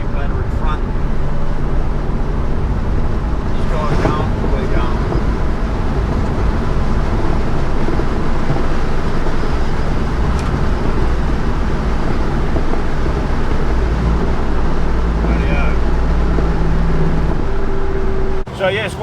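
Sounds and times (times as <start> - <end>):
car engine running: 0.0 - 19.0
road noise: 0.0 - 19.0.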